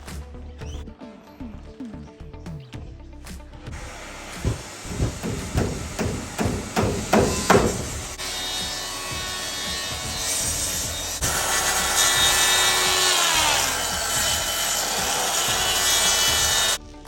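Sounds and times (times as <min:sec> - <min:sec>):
power saw cutting: 0:03.7 - 0:16.8.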